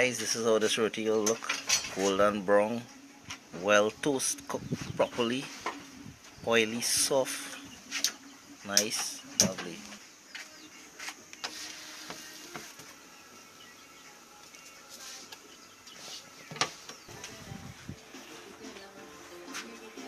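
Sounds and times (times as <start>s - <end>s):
utensils and cookware clicking: 1.2s - 2.0s.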